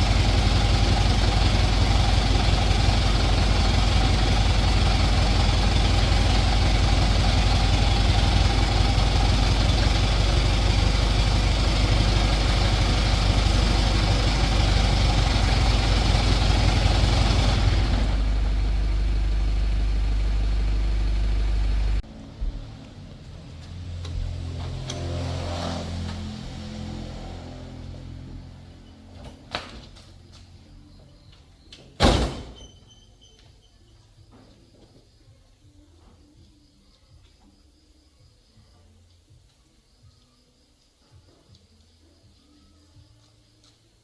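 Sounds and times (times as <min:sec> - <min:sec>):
truck diesel engine rumbling: 0:00.0 - 0:33.7.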